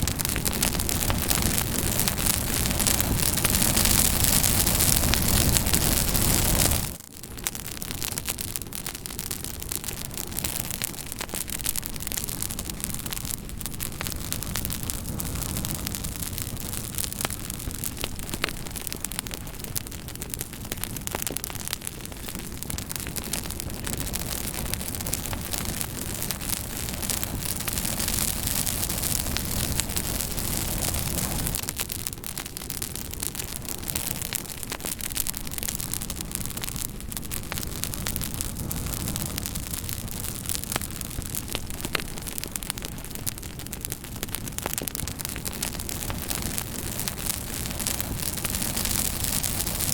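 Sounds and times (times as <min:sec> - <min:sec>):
campfire crackling: 0:00.0 - 0:49.9.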